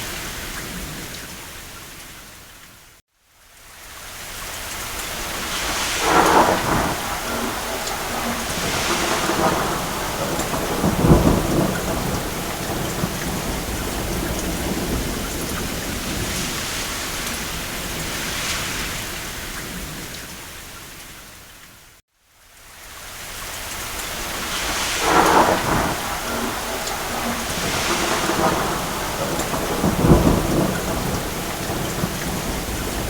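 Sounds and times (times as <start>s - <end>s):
steady rain: 0.0s - 33.0s
distant thunder rumbling: 5.2s - 20.2s, 24.2s - 33.0s.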